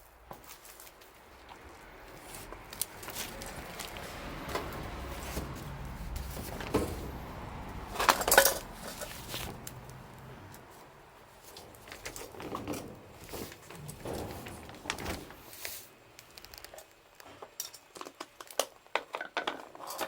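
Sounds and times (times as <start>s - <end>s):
low rumble: 1.8s - 15.5s
knocks and clatter: 2.2s - 16.8s.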